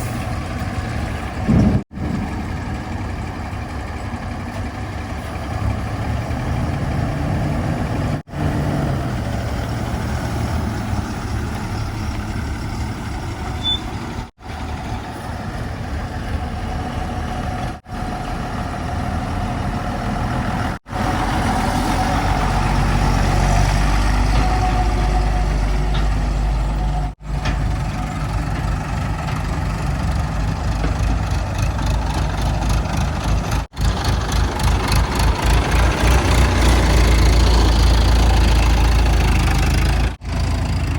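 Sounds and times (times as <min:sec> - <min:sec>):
heavy diesel engines rumbling: 0:00.0 - 0:40.9.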